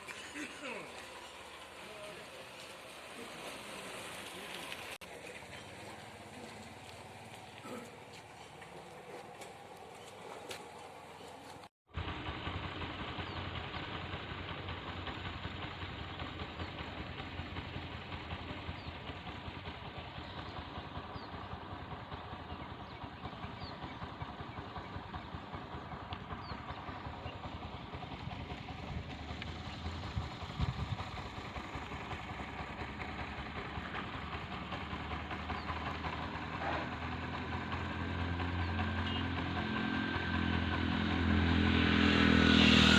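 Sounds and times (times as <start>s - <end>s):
heavy rain falling: 0.0s - 5.4s
vehicle engine approaching: 0.0s - 42.9s.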